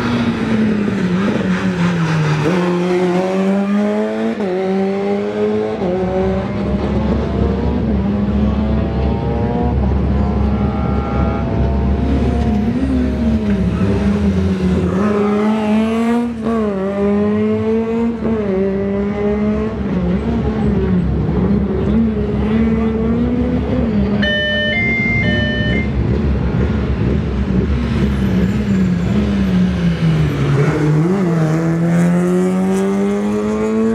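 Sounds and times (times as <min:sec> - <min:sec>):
two-note horn tone: 0:24.2 - 0:25.9
rally car engine revving past: 0:29.8 - 0:33.9.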